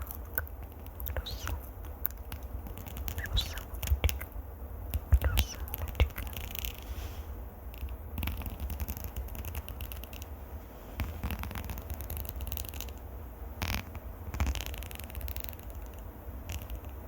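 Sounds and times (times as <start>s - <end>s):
scratching on microphone: 0.0s - 4.3s, 4.9s - 13.0s.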